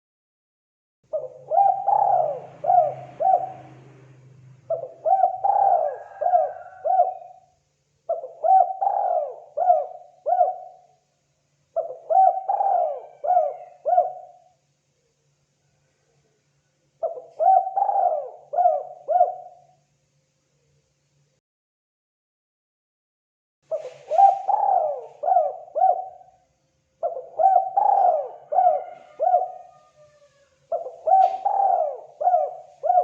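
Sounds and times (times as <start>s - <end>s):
dove cooing: 1.1s - 7.5s, 8.1s - 11.0s, 11.8s - 14.6s, 17.0s - 19.7s, 23.7s - 26.4s, 27.0s - 33.0s.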